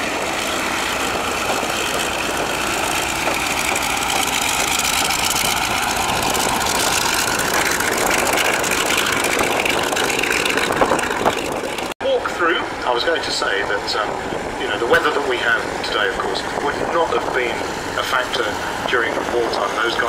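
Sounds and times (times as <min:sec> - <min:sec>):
propeller aircraft engines taxiing: 0:00.0 - 0:20.0.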